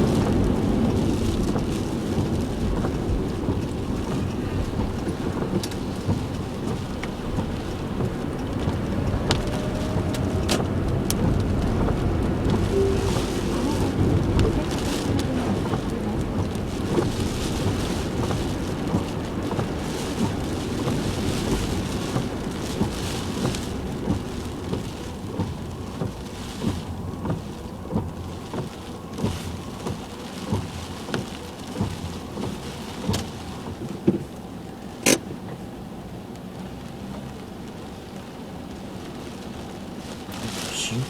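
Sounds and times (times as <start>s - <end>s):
heavy rain on a moving car: 0.0s - 41.0s
soft regular knocks: 15.6s - 34.4s.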